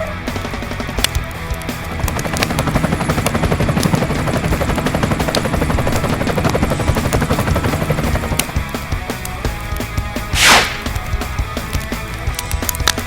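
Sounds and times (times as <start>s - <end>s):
helicopter rotor chopping: 1.2s - 9.2s, 10.3s - 11.3s.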